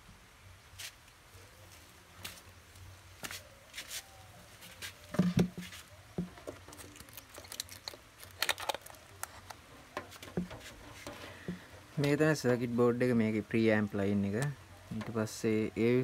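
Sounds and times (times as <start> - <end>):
speaker parts clicking and knocking: 8.4 - 11.6.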